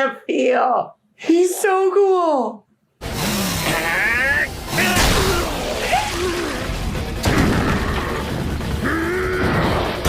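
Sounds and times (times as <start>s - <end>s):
fight soundtrack music: 3.0s - 10.0s
sharp booming impact: 4.6s - 8.7s.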